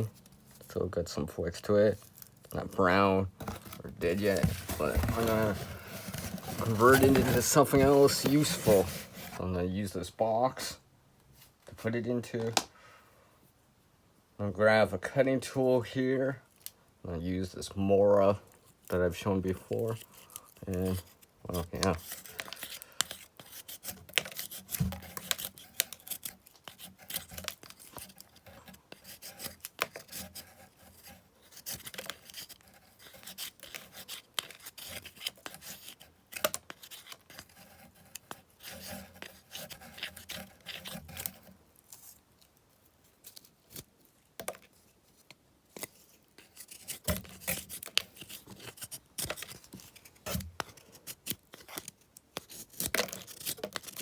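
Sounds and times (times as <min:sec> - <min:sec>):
knife shaving plant stalk: 0:18.8 - 0:42.2, 0:45.7 - 0:54.0.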